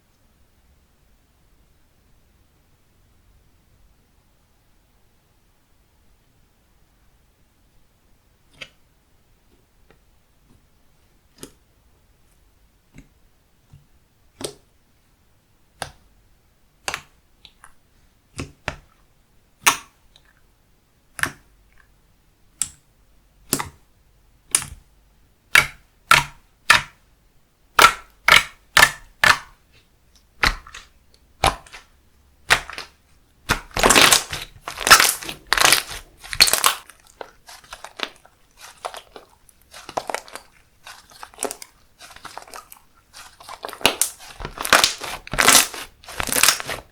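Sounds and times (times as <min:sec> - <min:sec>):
slime clicking and popping: 0:16.8 - 0:17.7, 0:25.5 - 0:27.0, 0:27.7 - 0:29.6, 0:30.4 - 0:46.9.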